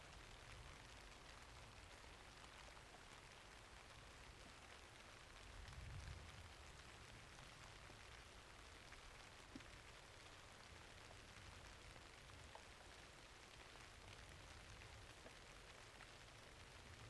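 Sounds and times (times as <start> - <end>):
faint steady rainfall: 0.0 - 17.0
raindrop ticks: 0.0 - 17.0.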